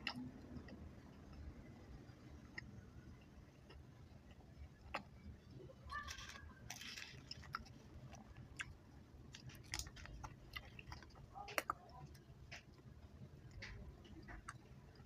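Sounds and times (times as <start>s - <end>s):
chewing with wet mouth clicks: 0.0s - 1.5s, 2.5s - 5.2s, 6.2s - 15.0s.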